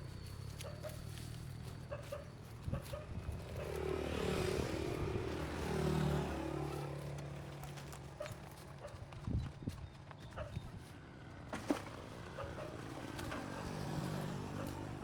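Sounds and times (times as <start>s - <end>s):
motor vehicle driving past: 3.5s - 7.8s.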